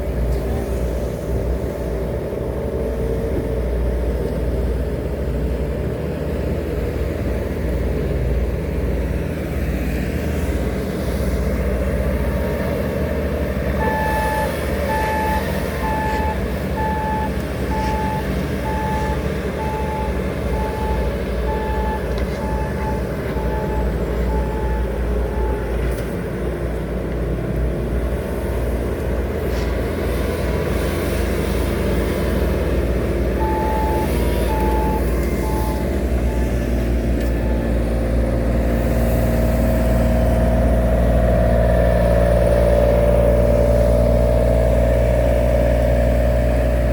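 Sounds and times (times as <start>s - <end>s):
diesel engine running: 0.0s - 46.9s
reversing alarm beeps: 13.8s - 25.7s, 33.4s - 36.7s, 37.3s - 37.8s.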